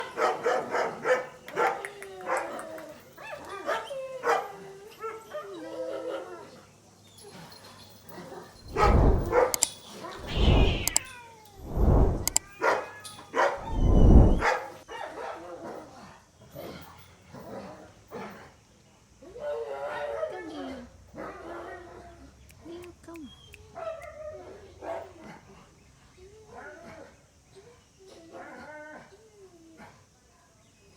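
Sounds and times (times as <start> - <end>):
deep rumbling bursts: 8.6 - 9.6, 10.2 - 12.4, 13.6 - 14.5.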